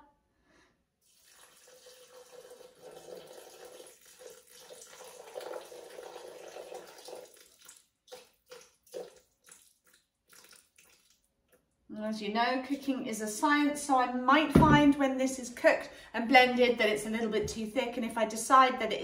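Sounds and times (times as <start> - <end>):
water pouring into steel bowl: 1.0 - 11.3
water drips and splashes: 1.1 - 11.7.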